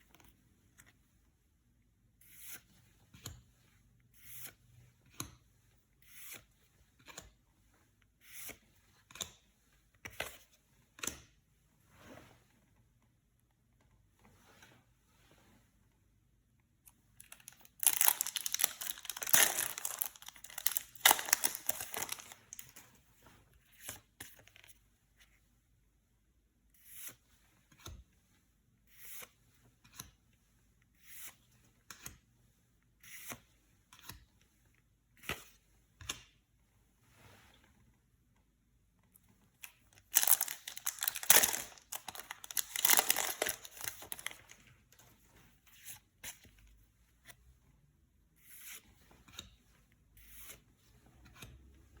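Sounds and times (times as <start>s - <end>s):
cards crinkling and snapping: 17.2s - 22.8s, 40.0s - 44.6s
wrappers tearing and crinkling: 17.2s - 22.8s, 40.0s - 44.6s.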